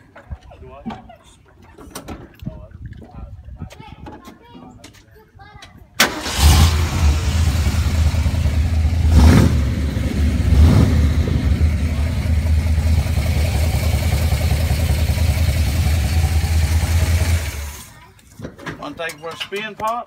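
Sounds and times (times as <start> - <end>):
car engine idling: 6.1 - 17.9.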